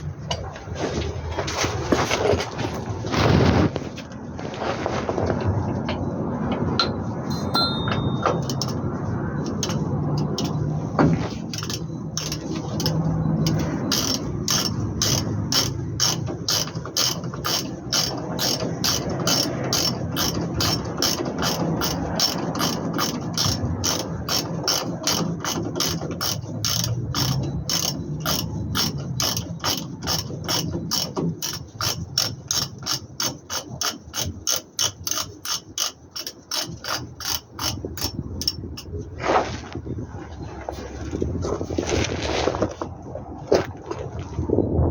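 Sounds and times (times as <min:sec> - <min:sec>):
ratchet wrench clicking: 0:09.4 - 0:10.6, 0:11.5 - 0:38.9.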